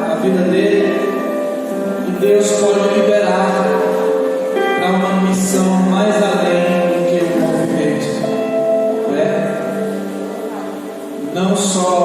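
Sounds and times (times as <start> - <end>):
slow song with singing: 0.0 - 12.0.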